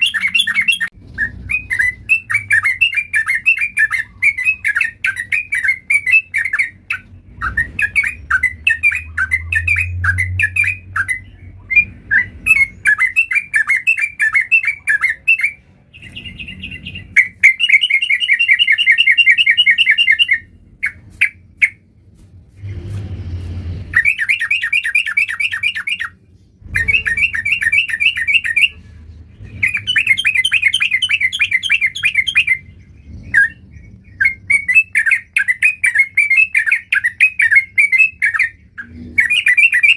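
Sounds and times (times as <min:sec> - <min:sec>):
bird singing rapid repeated notes: 0:00.0 - 0:22.0, 0:23.9 - 0:39.9
low rumble: 0:20.4 - 0:24.2, 0:28.6 - 0:30.4.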